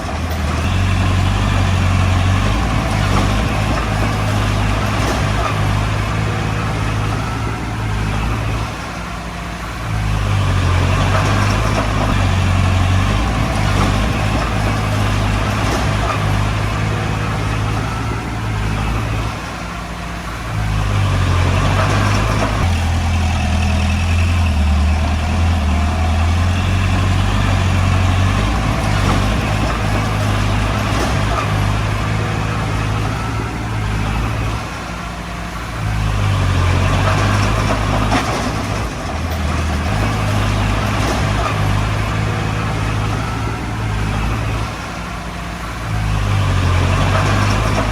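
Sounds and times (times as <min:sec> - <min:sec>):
bulldozer diesel engine working: 0:00.0 - 0:47.9.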